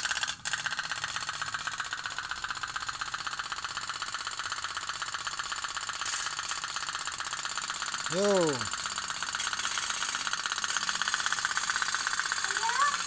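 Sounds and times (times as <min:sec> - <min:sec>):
toy boat boiler popping: 0:00.0 - 0:13.0.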